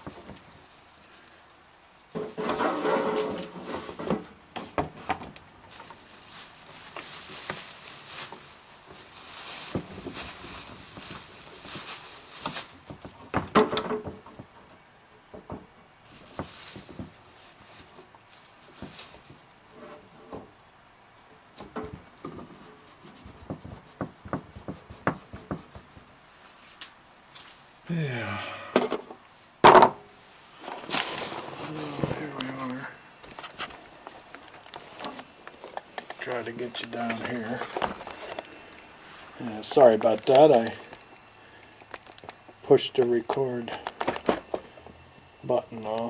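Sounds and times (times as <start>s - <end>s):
pipe rubbing scrape: 2.2s - 4.1s
objects knocking on workbench: 23.4s - 26.1s, 28.8s - 30.0s.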